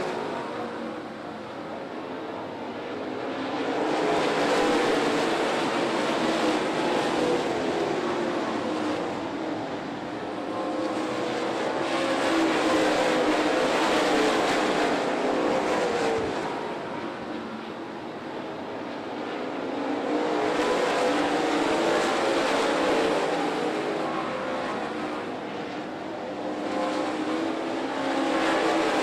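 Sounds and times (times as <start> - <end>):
race car engines droning: 0.0 - 29.0.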